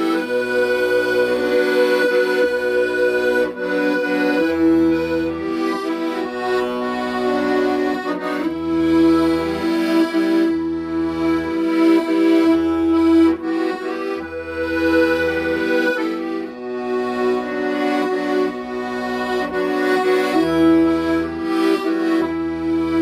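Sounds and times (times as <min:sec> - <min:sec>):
accordion playing slow melody: 0:00.0 - 0:23.0.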